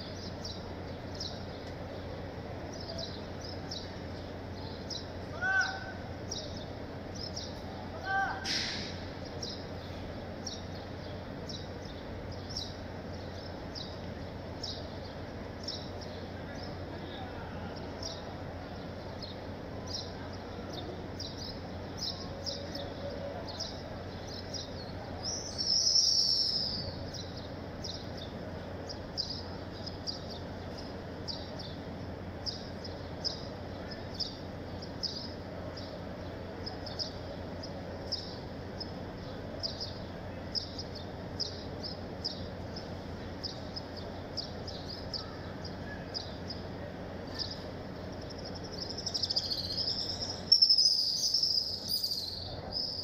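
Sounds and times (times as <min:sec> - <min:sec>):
small bird chirping: 0:00.0 - 0:01.8, 0:19.0 - 0:53.0.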